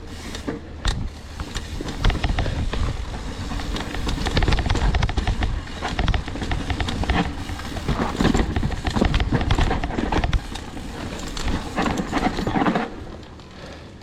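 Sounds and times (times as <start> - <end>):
wind rumble on microphone: 0.0 - 13.0
mountain bike rattling on trail: 0.0 - 14.0.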